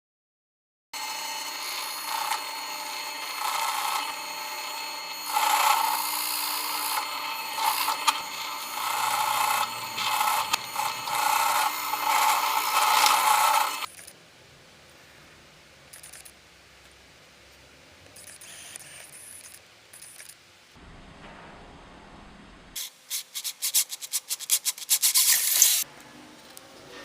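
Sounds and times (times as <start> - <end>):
power drill boring into wood: 1.0 - 13.9.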